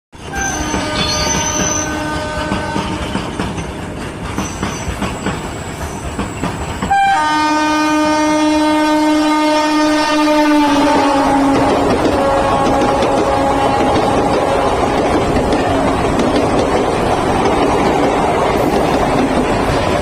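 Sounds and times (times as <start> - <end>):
train wheels clattering: 0.2 - 7.8, 10.6 - 20.0
train horn: 0.3 - 3.4, 6.9 - 16.2.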